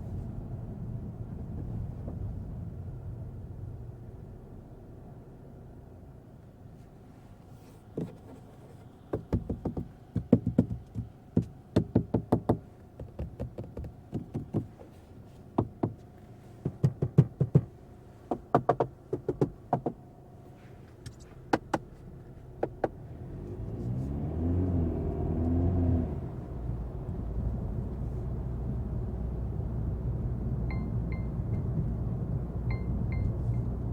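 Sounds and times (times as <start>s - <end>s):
sharp knocks and taps: 9.1s - 15.0s, 15.6s - 16.0s, 16.6s - 17.7s, 18.3s - 20.0s
car engine accelerating: 22.0s - 33.9s.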